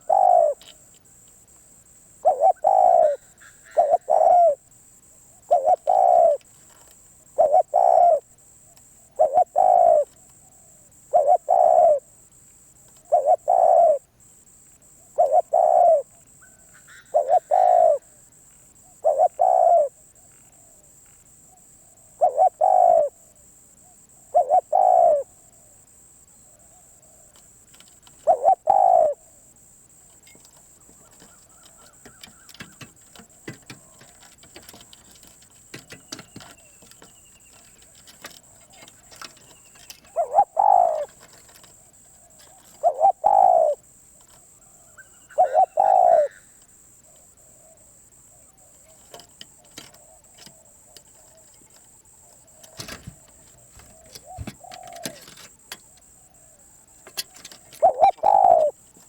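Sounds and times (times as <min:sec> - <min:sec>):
dove cooing: 0:00.0 - 0:00.9, 0:02.1 - 0:04.7, 0:05.3 - 0:08.4, 0:09.0 - 0:12.1, 0:13.0 - 0:14.1, 0:15.0 - 0:18.2, 0:18.8 - 0:20.9, 0:21.5 - 0:25.8, 0:26.4 - 0:29.4, 0:30.3 - 0:59.0
faint clicks and rattles: 0:27.2 - 0:28.3, 0:29.9 - 0:40.2, 0:41.0 - 0:42.9, 0:48.7 - 0:56.2, 0:56.8 - 0:58.2.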